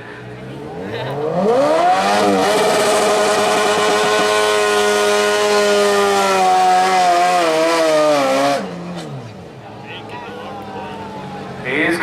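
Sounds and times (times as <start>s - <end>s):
lawn tractor engine at high revs: 1.2s - 8.7s.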